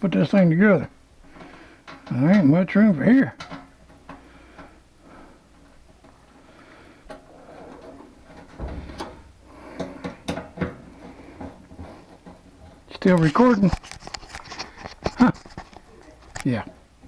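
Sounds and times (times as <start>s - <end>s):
clicks and knocks of parts handled: 3.4s - 4.7s, 7.1s - 16.8s.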